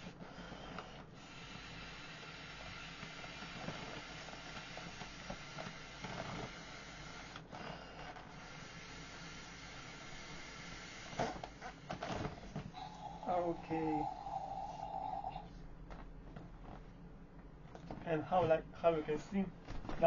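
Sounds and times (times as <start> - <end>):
person blowing into valve: 12.7 - 15.5.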